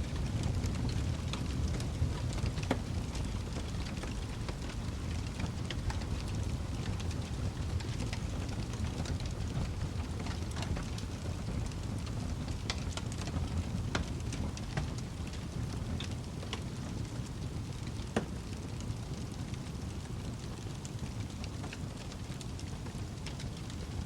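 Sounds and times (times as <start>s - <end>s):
fireplace fire crackling: 0.0s - 24.0s
low steady rumble: 0.0s - 24.0s.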